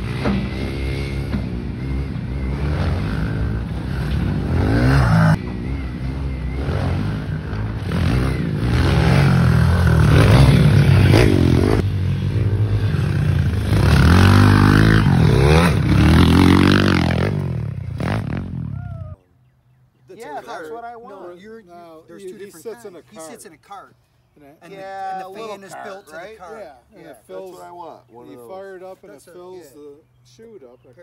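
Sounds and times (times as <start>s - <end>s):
pit bike engine revving: 0.0s - 18.8s.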